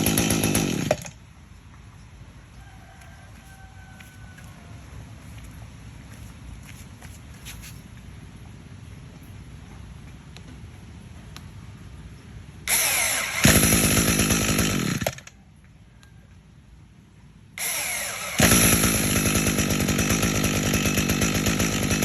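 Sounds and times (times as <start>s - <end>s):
small engine running: 0.0s - 1.2s, 12.7s - 15.3s, 17.6s - 22.0s
starter whirring: 0.0s - 1.2s, 12.7s - 15.3s, 17.6s - 22.0s.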